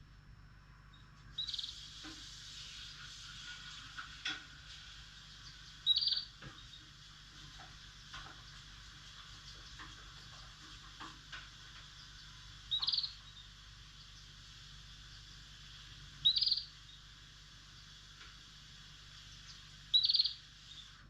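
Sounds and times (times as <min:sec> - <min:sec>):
cage birds chirping: 0:00.8 - 0:21.0.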